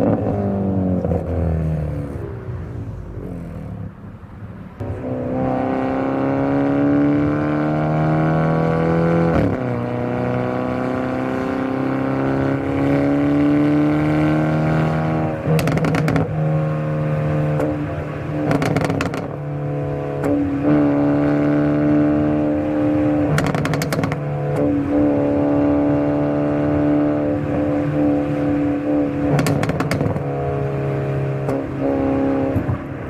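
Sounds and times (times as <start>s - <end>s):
car engine accelerating: 0.0s - 33.0s
exhaust crackling: 12.7s - 33.0s.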